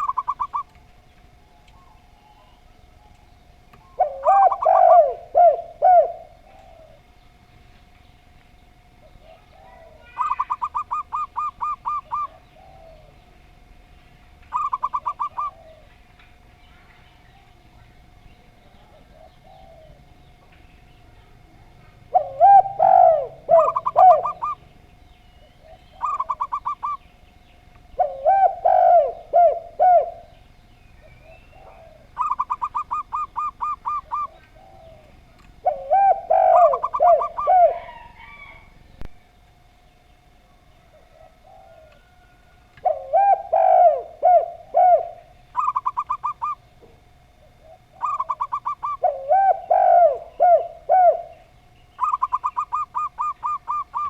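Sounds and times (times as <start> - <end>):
dove quick high coo notes: 0.0 - 0.7, 4.0 - 7.0, 14.5 - 15.9, 22.1 - 24.6, 25.6 - 27.0, 28.0 - 30.3, 35.6 - 38.6, 42.8 - 46.6, 47.6 - 51.4, 52.0 - 54.0
dove low cooing phrases: 0.0 - 54.0
faint steady hum: 0.0 - 54.0.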